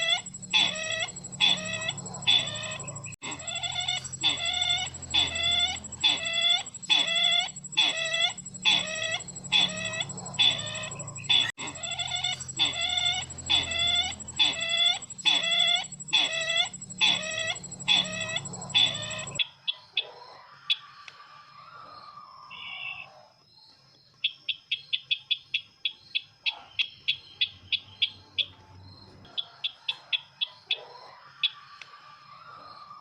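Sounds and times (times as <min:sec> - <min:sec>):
faint high whine: 0:00.0 - 0:19.4
recorded bird call: 0:00.0 - 0:23.3, 0:24.2 - 0:33.0.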